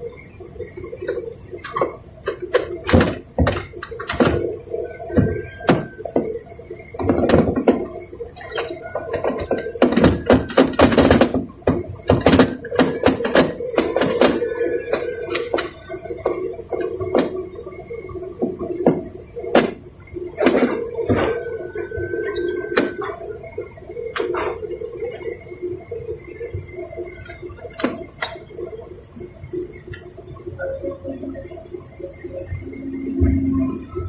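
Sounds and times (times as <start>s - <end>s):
excavator engine and hydraulics drone: 0.0s - 34.0s
metal parts clanking: 8.4s - 11.5s.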